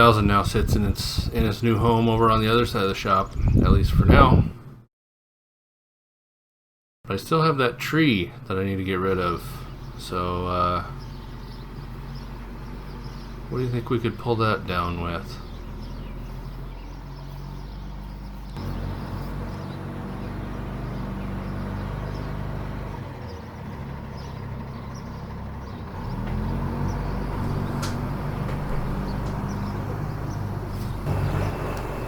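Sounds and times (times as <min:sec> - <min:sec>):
truck engine revving: 0:09.6 - 0:32.0.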